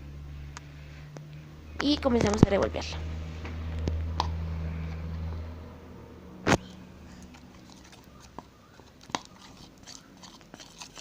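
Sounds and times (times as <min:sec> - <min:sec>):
low hum: 0:00.0 - 0:10.5
spoon stirring liquid in a bowl: 0:07.2 - 0:11.0.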